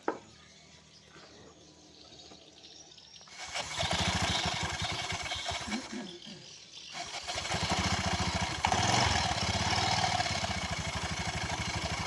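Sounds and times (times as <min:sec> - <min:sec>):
scooter engine running: 0:03.2 - 0:12.0.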